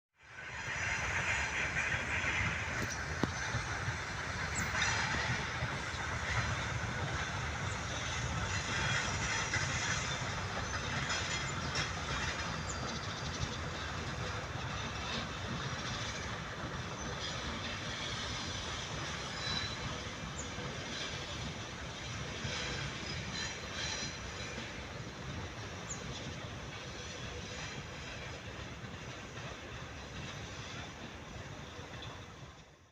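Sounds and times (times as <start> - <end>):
train wheels rumbling on rail: 0.2 - 32.9
wheel squeal: 17.0 - 21.3.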